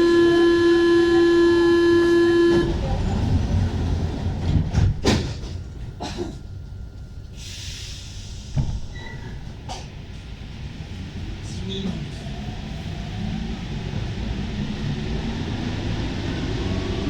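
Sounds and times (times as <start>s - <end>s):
door-closing warning beep: 0.0s - 2.8s
train rumble: 0.0s - 17.0s
train clunks: 2.0s - 10.4s.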